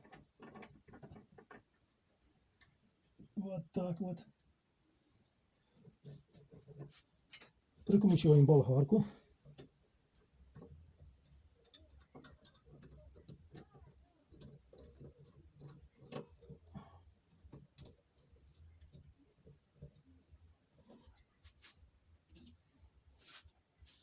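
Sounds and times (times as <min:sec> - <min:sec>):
metal parts clicking and knocking: 0:10.6 - 0:20.0.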